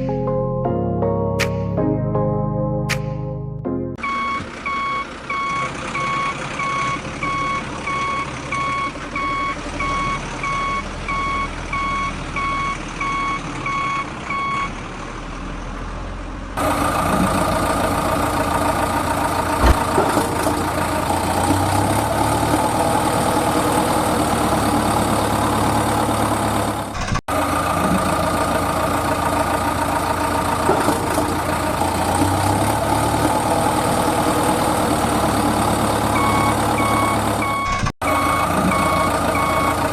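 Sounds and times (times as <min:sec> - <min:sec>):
truck reversing alarm beeping: 0:04.0 - 0:14.8, 0:35.5 - 0:39.9
truck engine running: 0:04.0 - 0:39.9.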